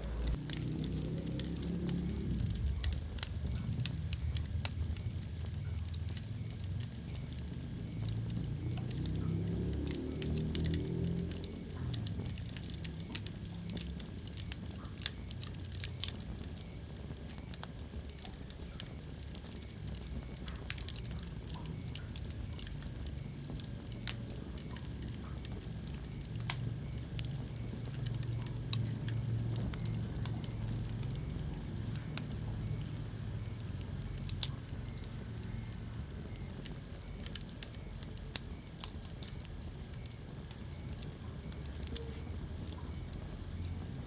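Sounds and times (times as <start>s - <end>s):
low rumble of burning logs: 0.0s - 44.0s
wood fire pops and snaps: 0.0s - 44.0s.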